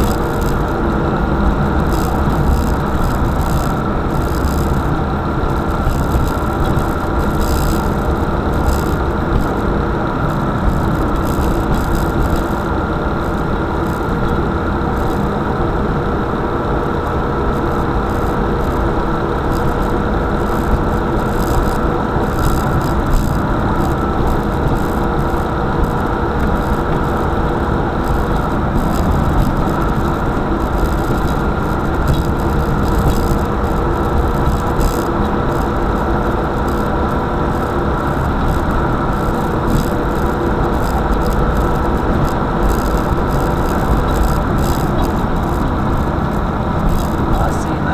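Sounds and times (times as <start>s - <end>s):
car engine hum: 0.0s - 47.9s
road noise rumble: 0.0s - 47.9s.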